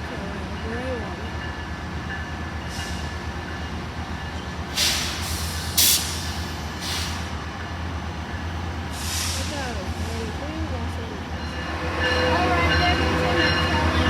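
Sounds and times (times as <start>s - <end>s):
train engine rumble: 0.0s - 14.0s
air brake hisses: 4.7s - 7.3s, 8.9s - 9.6s.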